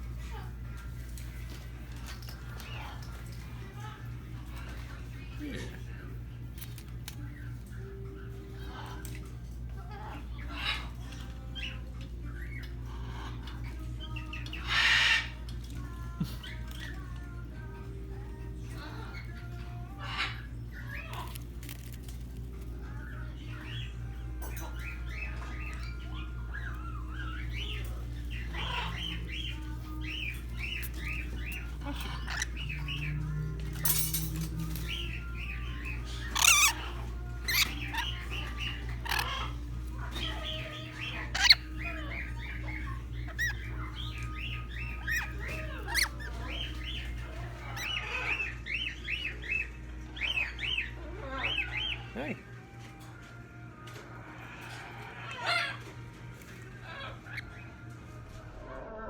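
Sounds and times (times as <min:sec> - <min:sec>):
parrots chirping: 0:00.0 - 0:52.4, 0:54.4 - 0:59.0
soft background music: 0:00.0 - 0:59.0
parrots squawking harshly: 0:09.8 - 0:11.0, 0:14.5 - 0:15.4, 0:20.0 - 0:22.0, 0:24.6 - 0:33.0, 0:33.8 - 0:49.6, 0:54.4 - 0:55.9.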